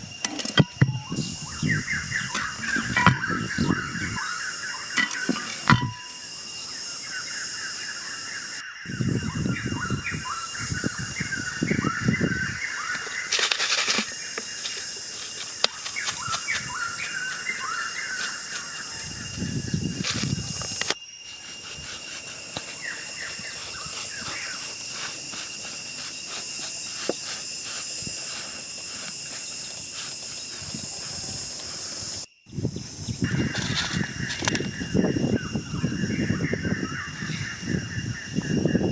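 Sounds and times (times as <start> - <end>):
small birds chirping: 0.0 - 38.8
steady high hiss: 12.0 - 33.3.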